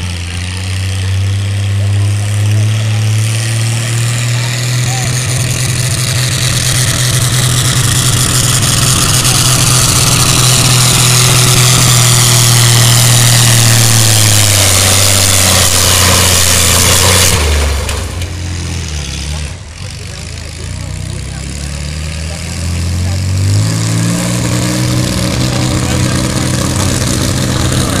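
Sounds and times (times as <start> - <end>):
tractor engine running flat out: 0.0 - 28.0.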